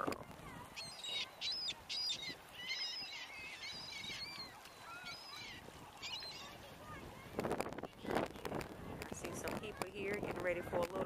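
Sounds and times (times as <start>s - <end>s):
birds calling: 0.7s - 6.7s.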